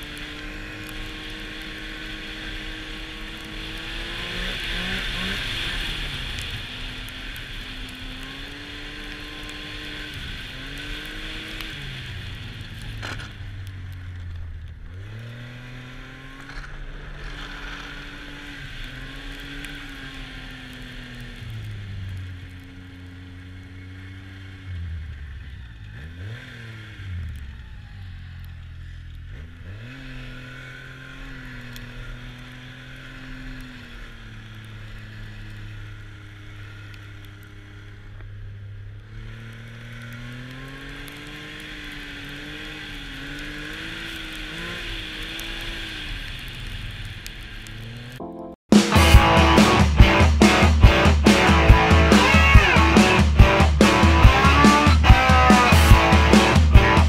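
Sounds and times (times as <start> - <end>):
snowmobile engine revving: 0.0 - 14.2, 14.8 - 38.2, 39.0 - 57.0
wind and track noise hiss: 0.0 - 24.8.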